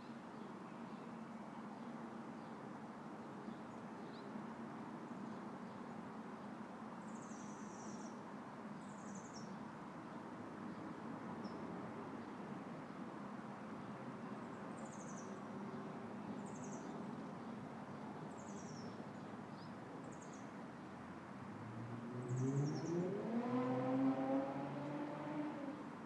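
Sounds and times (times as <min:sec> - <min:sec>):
vehicle engine: 0:21.6 - 0:25.8.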